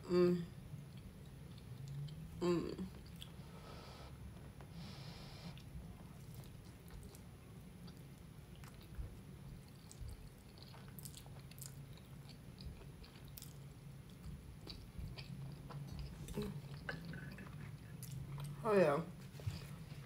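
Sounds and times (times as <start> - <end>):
low steady hum: 0.0 - 20.0
person chewing food: 0.8 - 3.5, 5.5 - 18.6.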